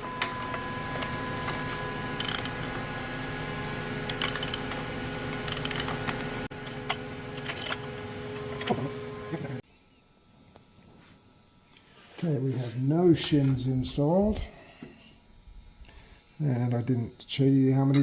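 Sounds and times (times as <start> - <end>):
steady shop hum: 0.0 - 18.0
ratchet wrench clicking: 2.2 - 2.7, 4.2 - 4.7, 5.5 - 6.0.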